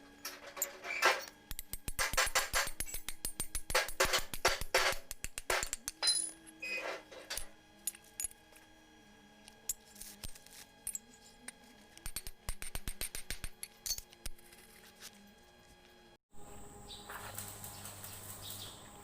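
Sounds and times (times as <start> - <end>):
metal tools clinking: 5.6 - 8.5, 13.6 - 14.8.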